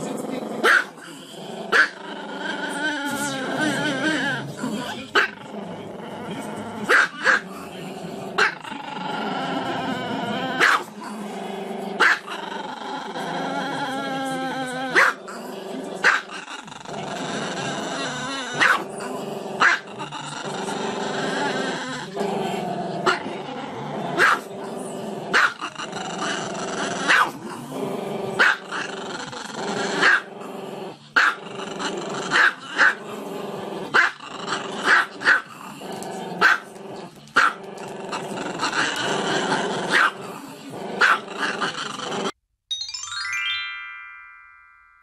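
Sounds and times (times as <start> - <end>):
dog barking: 0.6 - 1.0, 1.7 - 1.9, 6.9 - 7.4, 10.6 - 10.9, 12.0 - 12.3, 15.0 - 15.2, 16.0 - 16.2, 18.6 - 18.8, 19.6 - 19.8, 24.2 - 24.5, 25.3 - 25.6, 27.1 - 27.4, 28.4 - 28.6, 30.0 - 30.3, 31.2 - 31.4, 32.3 - 33.0, 34.0 - 34.2, 34.8 - 35.4, 36.4 - 36.7, 37.4 - 37.6, 39.9 - 40.2, 41.0 - 41.2.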